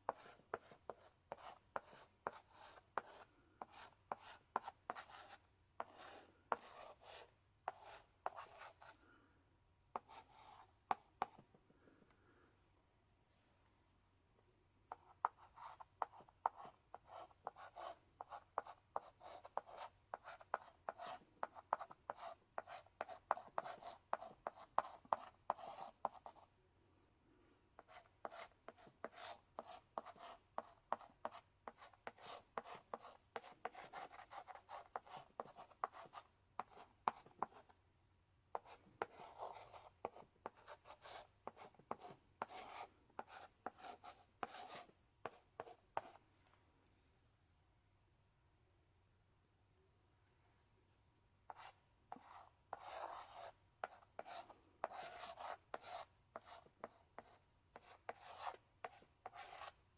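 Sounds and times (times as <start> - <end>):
chalk writing on blackboard: 0.1 - 9.0, 10.0 - 11.4, 14.9 - 26.5, 27.8 - 37.7, 38.5 - 46.2, 51.5 - 59.8.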